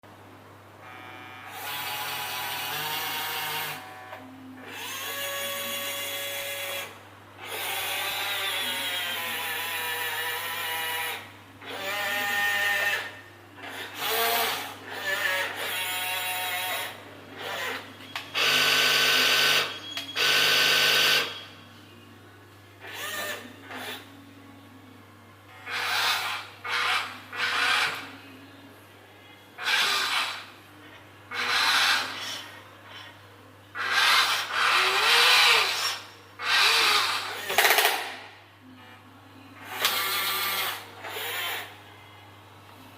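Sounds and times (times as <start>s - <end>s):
toy electric motors whining: 0.8s - 21.4s, 22.8s - 24.1s, 25.5s - 28.1s, 29.6s - 30.5s, 31.3s - 33.1s, 33.7s - 38.2s, 39.7s - 41.8s.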